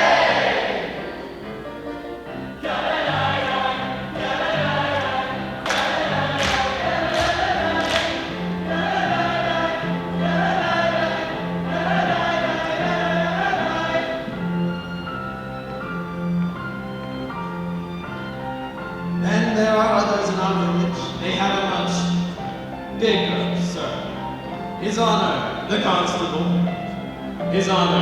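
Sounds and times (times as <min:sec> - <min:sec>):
musical-theatre accompaniment: 0:00.0 - 0:28.0
cast singing in chorus: 0:02.4 - 0:14.9.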